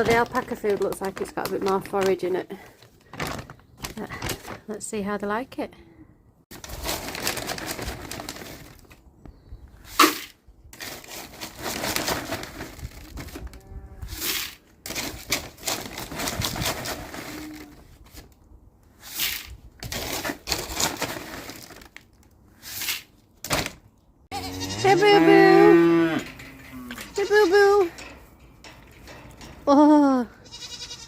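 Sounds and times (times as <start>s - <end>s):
feed sacks rustling: 2.7s - 4.6s, 19.9s - 22.0s.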